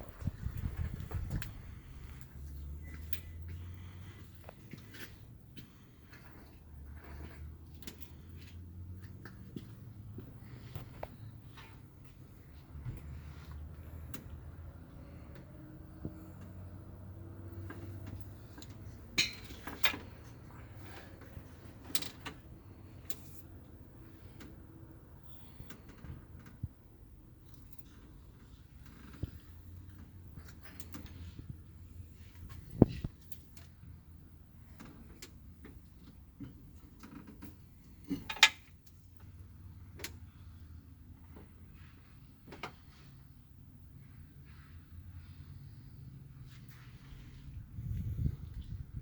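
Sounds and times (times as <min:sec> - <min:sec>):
metallic creaks and clicks: 0:36.4 - 0:39.0.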